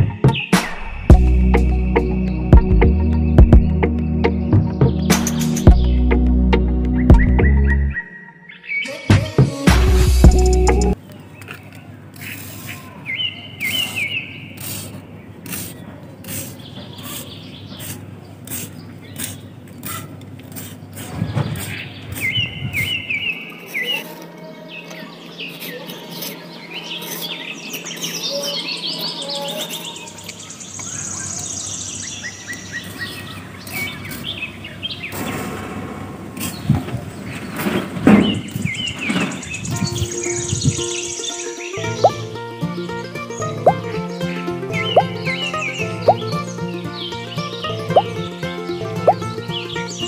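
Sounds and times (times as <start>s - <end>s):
small birds chirping: 0.0s - 9.1s, 10.3s - 35.4s, 36.4s - 50.0s
toy hoe scraping sand: 12.1s - 13.0s, 13.6s - 30.6s, 32.5s - 34.5s.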